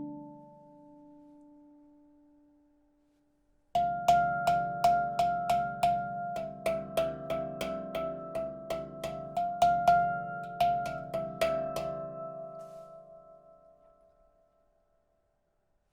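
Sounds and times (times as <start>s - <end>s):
handpan note struck: 3.8s - 13.6s.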